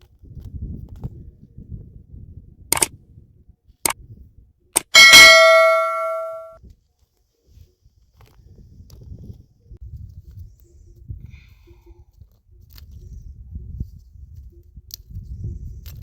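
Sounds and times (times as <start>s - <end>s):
sharp clicks: 4.8s - 6.3s
loud metallic clang ringing: 4.9s - 6.6s.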